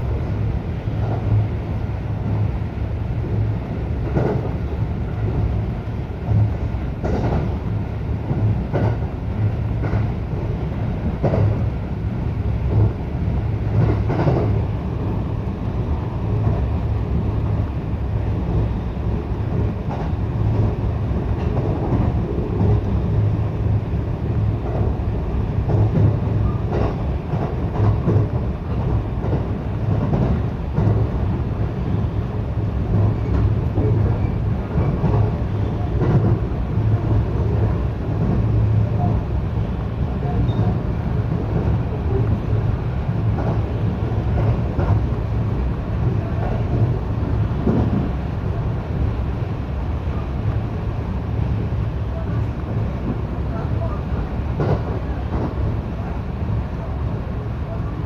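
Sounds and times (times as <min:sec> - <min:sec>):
train wheels rumbling on rail: 0:00.0 - 0:58.0
rail joint clacks: 0:03.2 - 0:11.8, 0:12.5 - 0:17.6, 0:18.2 - 0:48.3, 0:52.1 - 0:56.1.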